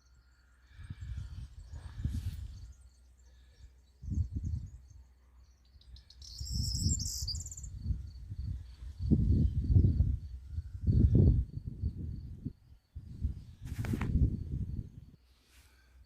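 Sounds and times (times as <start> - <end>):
high insect trill: 0.0 - 16.0
insects chirping: 0.0 - 16.0
low gusty rumbles: 7.7 - 15.1.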